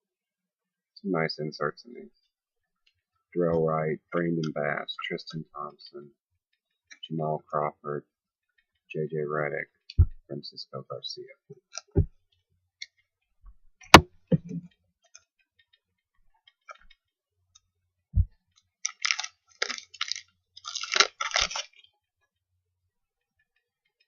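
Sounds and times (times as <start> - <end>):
packaging crinkling and tearing: 18.8 - 21.9.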